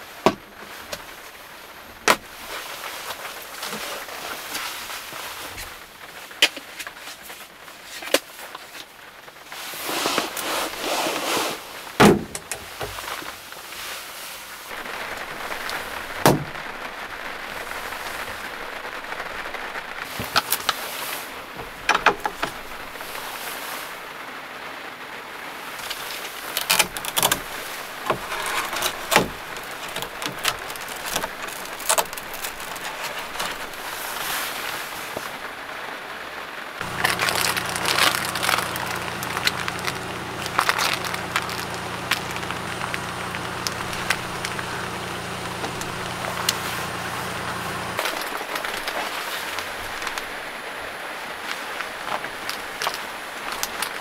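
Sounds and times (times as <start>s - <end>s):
rain on a van: 0.0s - 54.0s
gear clicking and knocking: 25.8s - 34.0s, 36.8s - 50.3s
low hum: 36.8s - 50.3s.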